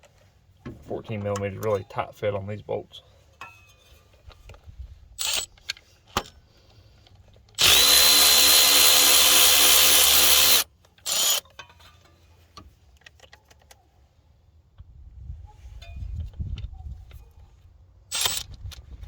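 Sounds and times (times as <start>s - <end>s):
electric ratchet whirring: 5.2s - 5.5s, 7.6s - 11.4s, 18.1s - 18.5s.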